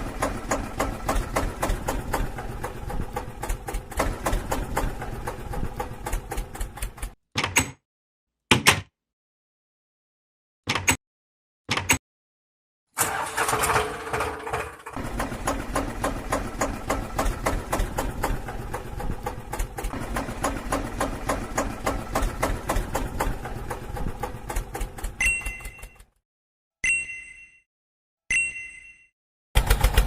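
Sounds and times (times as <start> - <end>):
small tractor motor ticking: 0.0 - 7.2, 13.0 - 26.0, 29.6 - 30.0.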